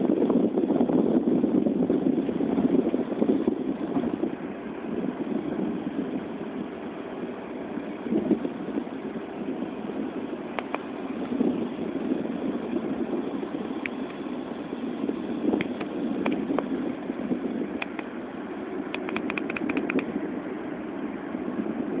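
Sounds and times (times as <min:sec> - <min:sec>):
engine and exhaust drone: 0:00.0 - 0:22.0
road noise: 0:00.0 - 0:22.0
light clicks: 0:18.9 - 0:20.1.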